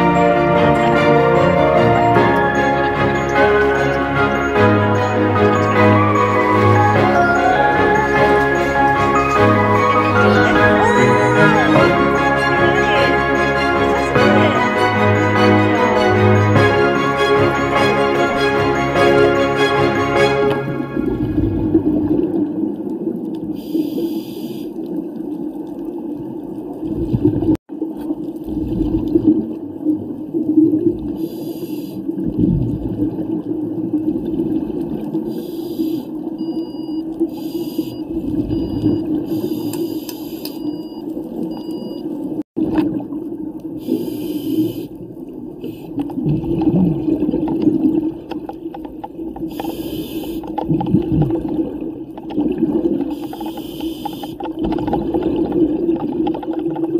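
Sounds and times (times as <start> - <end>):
underwater low drone: 0.0 - 56.9
diver's exhaled bubbles: 20.6 - 23.8, 26.8 - 27.6, 28.4 - 31.4, 32.1 - 35.4, 46.0 - 56.9.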